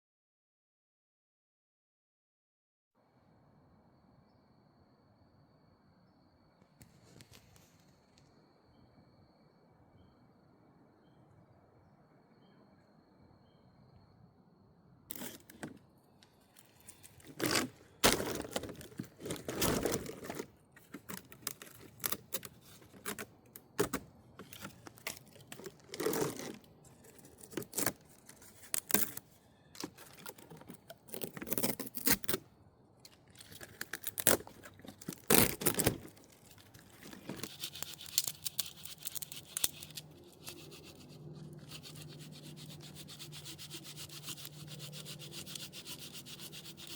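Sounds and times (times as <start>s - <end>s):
paper tearing and crinkling: 15.1s - 15.7s, 16.8s - 29.2s, 33.3s - 45.7s.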